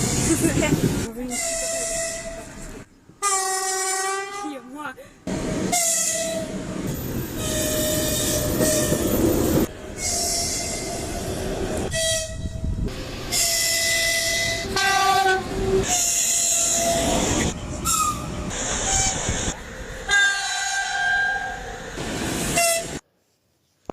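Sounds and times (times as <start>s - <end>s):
rumble of moving trains: 0.0s - 23.0s
train air horn blasts: 3.2s - 4.6s, 5.7s - 6.6s, 10.0s - 11.2s, 11.9s - 17.2s, 20.1s - 21.6s, 22.5s - 23.0s
train whistles: 5.7s - 6.6s, 7.4s - 9.1s, 10.0s - 11.3s, 11.9s - 12.7s, 13.3s - 19.1s, 20.0s - 21.8s, 22.5s - 23.0s.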